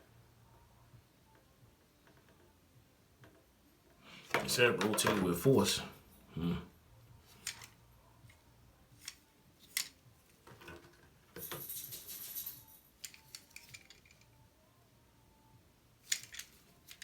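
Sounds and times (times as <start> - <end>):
plastic parts scraping and rattling: 7.2 - 7.8, 9.0 - 14.3, 16.0 - 17.0
plastic parts clicking: 7.3 - 7.8, 9.0 - 11.5, 13.0 - 14.3, 16.0 - 17.0.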